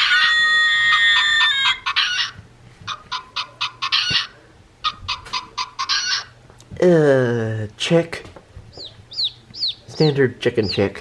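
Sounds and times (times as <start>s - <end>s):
toy chicken calls: 0.0s - 6.4s.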